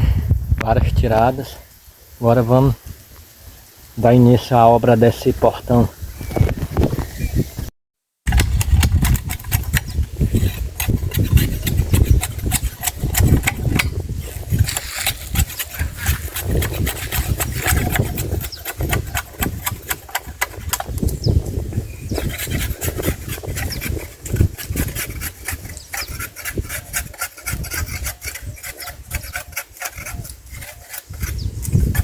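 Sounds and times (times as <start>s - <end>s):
wood scraping and rubbing: 8.3s - 32.0s.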